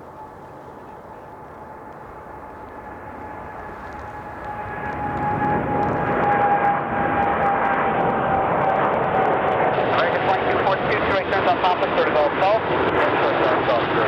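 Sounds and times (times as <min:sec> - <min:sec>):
jet engines whine and rumble: 0:00.0 - 0:14.0.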